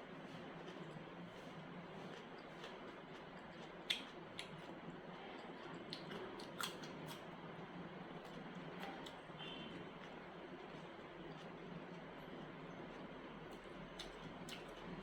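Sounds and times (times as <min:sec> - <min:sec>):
wet chewing clicks and smacks: 0:01.9 - 0:07.4, 0:10.0 - 0:12.0, 0:12.6 - 0:15.0.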